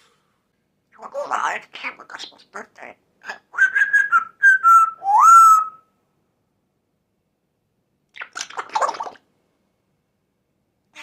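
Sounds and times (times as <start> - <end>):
parrot whistling: 3.5 - 5.8.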